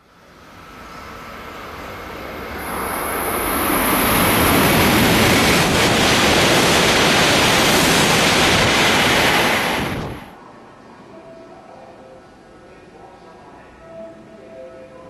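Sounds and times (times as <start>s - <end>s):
high-speed train rushing past: 0.0s - 10.8s.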